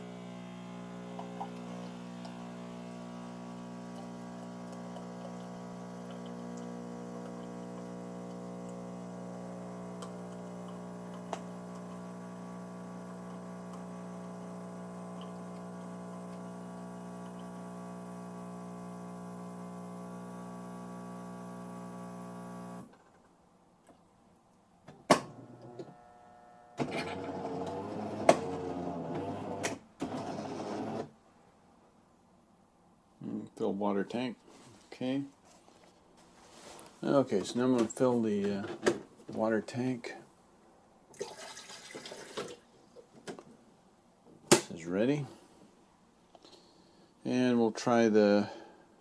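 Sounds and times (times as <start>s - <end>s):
coffee machine humming: 0.0s - 22.9s, 25.3s - 31.1s
coffee machine whirring and rattling: 0.0s - 22.9s, 26.8s - 31.1s.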